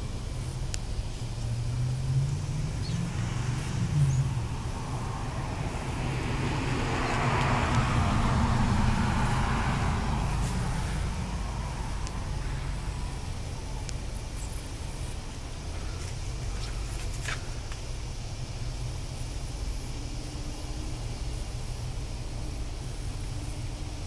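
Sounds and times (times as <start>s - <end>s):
car passing by: 1.3s - 14.2s.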